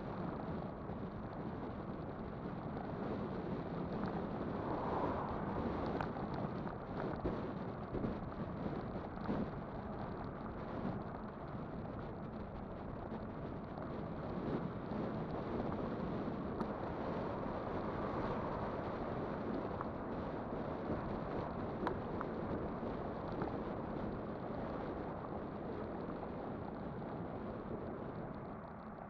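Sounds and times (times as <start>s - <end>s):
bike tyre rumble: 0.0s - 29.0s
wind on microphone: 0.0s - 29.0s.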